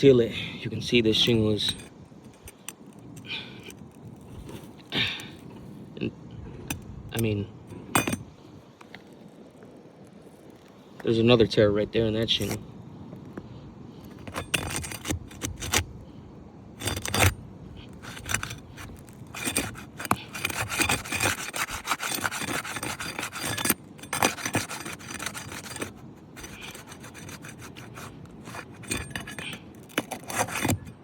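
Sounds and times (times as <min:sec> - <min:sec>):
shingle scraping and rasping: 0:00.0 - 0:31.0
shingle tearing: 0:00.8 - 0:05.8, 0:12.0 - 0:16.2, 0:16.8 - 0:31.0
shingle cracking: 0:01.1 - 0:05.8, 0:12.2 - 0:16.1, 0:16.8 - 0:31.0.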